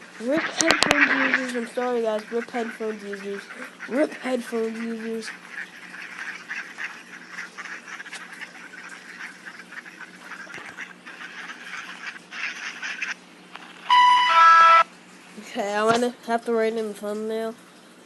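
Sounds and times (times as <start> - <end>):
birds chattering: 0.2 - 14.8
piercing bird call: 5.3 - 14.9.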